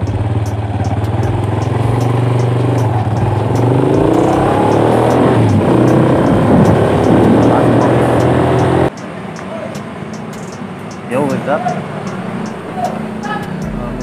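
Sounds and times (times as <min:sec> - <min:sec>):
motorcycle engine pulling away: 0:00.0 - 0:08.9.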